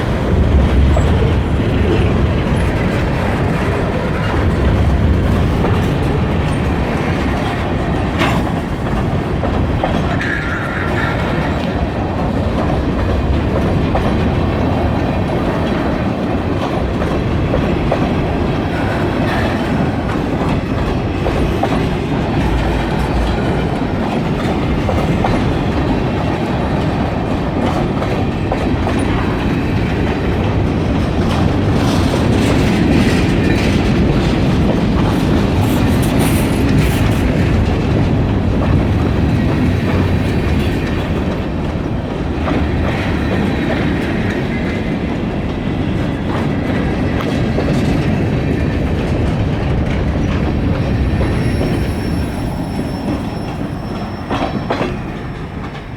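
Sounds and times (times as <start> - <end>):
freight train rolling past: 0.0 - 55.9
wheels clacking over rail joints: 0.0 - 55.9.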